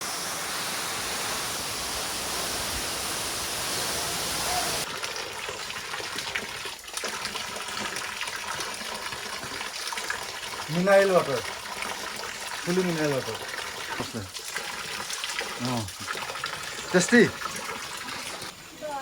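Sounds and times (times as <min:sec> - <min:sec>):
waterfall roaring: 0:00.0 - 0:04.9
water running and splashing: 0:00.0 - 0:19.0.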